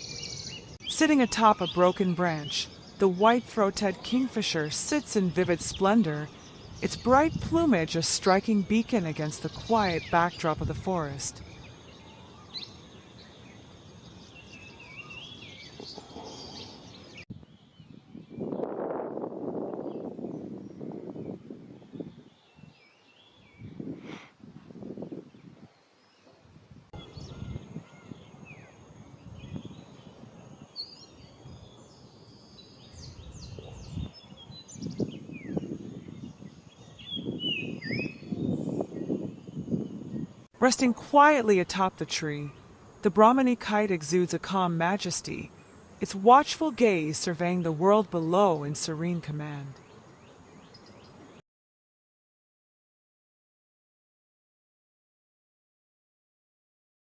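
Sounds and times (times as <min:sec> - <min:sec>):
birds chirping: 0:00.0 - 0:18.7, 0:25.0 - 0:51.4
insects: 0:00.0 - 0:18.9, 0:27.0 - 0:51.4
low rumbling in gusts: 0:17.3 - 0:22.3, 0:33.2 - 0:40.5.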